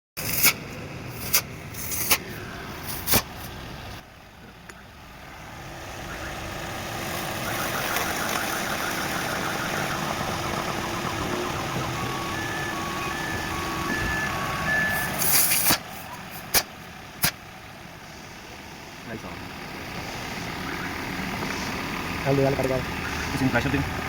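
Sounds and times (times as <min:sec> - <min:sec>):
car engine running: 0:00.3 - 0:24.0.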